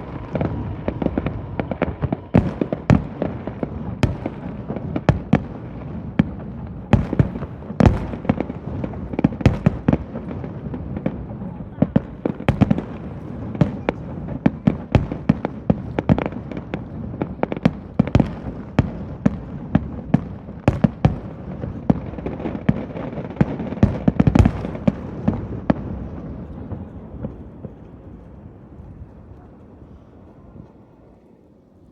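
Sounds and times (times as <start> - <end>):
low rumble: 0.0 - 5.0
fireworks bangs and cracks: 0.0 - 29.4.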